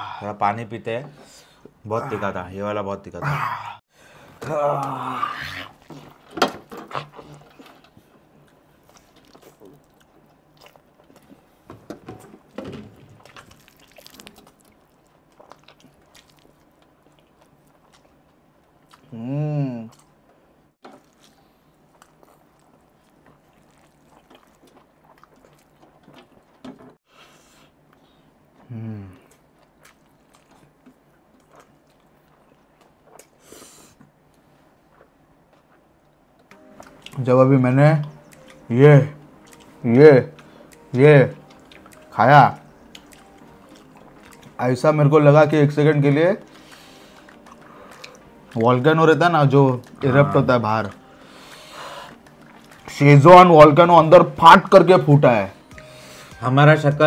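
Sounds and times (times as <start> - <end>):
person humming or groaning: 4.4 - 5.8, 19.1 - 20.0, 28.7 - 29.2, 50.0 - 50.5
mouth chewing and smacking: 4.8 - 11.6, 12.9 - 19.2, 19.8 - 27.0, 27.7 - 57.0
breath hiss: 33.4 - 34.0, 51.2 - 52.2.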